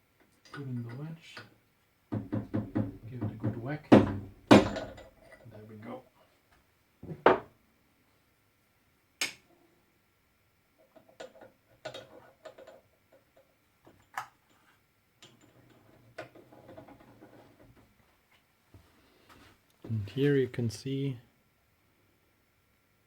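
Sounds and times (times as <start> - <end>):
loud metal knock: 2.2 - 5.0.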